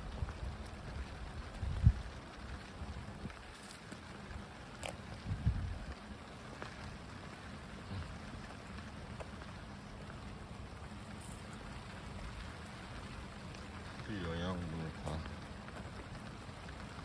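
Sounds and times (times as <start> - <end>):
wind rumble on microphone: 0.0 - 3.7, 5.1 - 6.1
light rain: 0.0 - 17.0.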